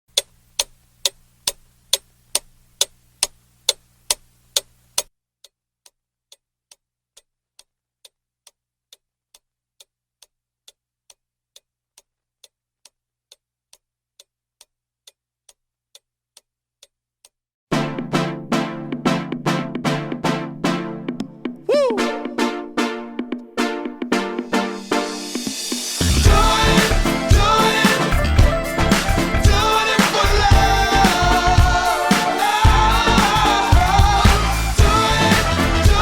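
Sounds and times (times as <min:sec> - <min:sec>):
steady ticking: 0:00.1 - 0:05.1.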